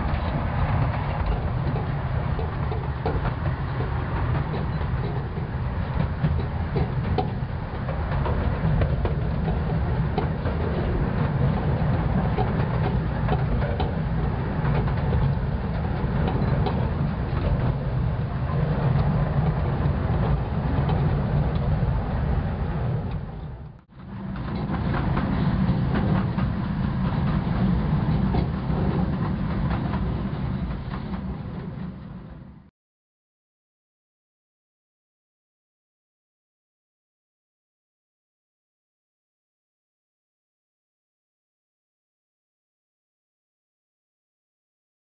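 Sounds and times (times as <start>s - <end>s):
train rumbling along track: 0.0s - 32.7s.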